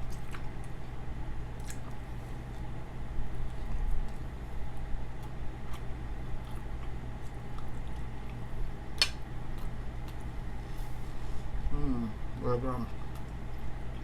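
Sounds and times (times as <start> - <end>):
person chewing food: 0.0 - 11.7, 12.8 - 14.0
steady low hum: 0.0 - 14.0.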